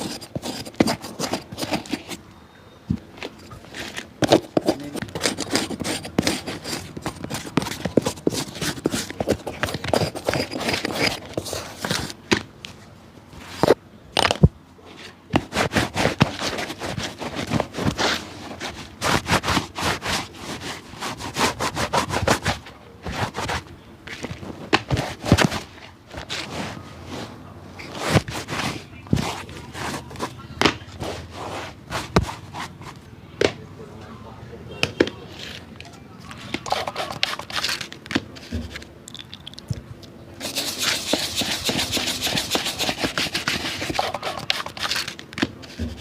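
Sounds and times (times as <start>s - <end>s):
quick scraping on a shoe: 0.0s - 2.2s, 3.6s - 12.3s, 15.0s - 33.1s, 36.4s - 38.8s, 40.4s - 46.0s.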